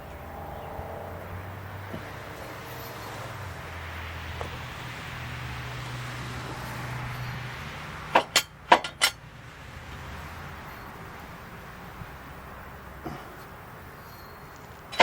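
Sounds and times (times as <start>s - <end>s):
sharp metallic clinks: 8.1s - 9.2s, 14.0s - 15.0s.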